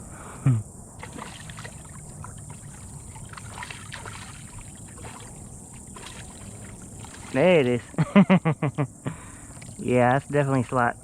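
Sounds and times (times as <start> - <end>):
small splashes: 1.0 - 8.0, 9.5 - 10.6
water lapping around a kayak: 1.0 - 8.0, 9.2 - 9.9.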